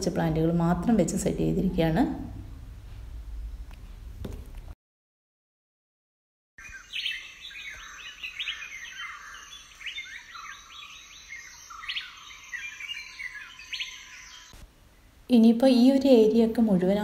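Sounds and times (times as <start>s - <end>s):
birds chirping: 6.6s - 15.2s.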